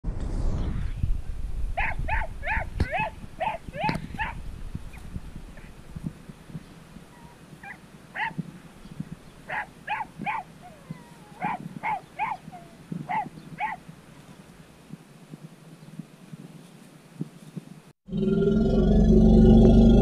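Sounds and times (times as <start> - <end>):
puppies whimpering and yipping: 1.8 - 5.0, 7.1 - 8.4, 9.5 - 13.8.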